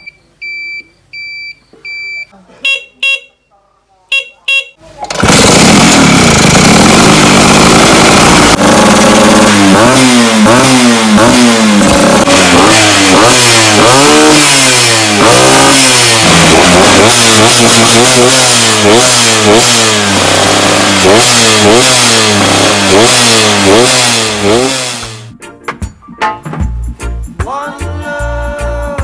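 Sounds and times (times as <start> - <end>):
scooter engine revving: 4.9 - 25.3.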